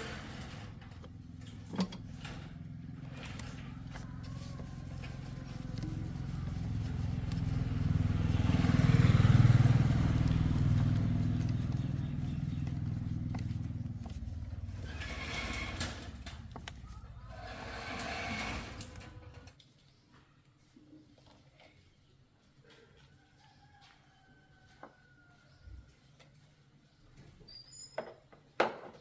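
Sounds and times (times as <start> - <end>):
motorcycle engine running: 0.0 - 17.6.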